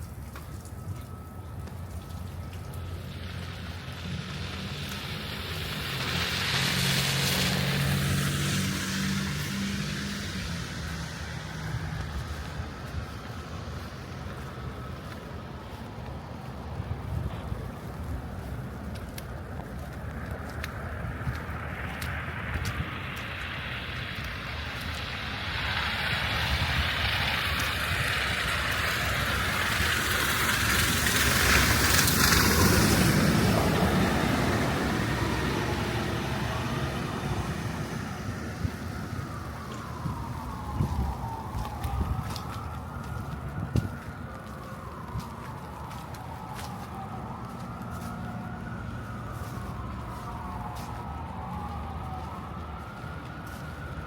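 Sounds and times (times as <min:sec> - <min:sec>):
vehicle engine hum: 0:00.0 - 0:54.0
tyre hiss through slush: 0:04.3 - 0:10.8.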